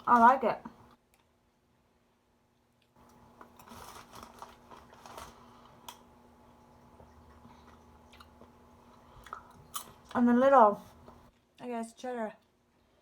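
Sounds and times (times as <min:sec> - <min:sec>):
popcorn being chewed: 0:02.7 - 0:10.2.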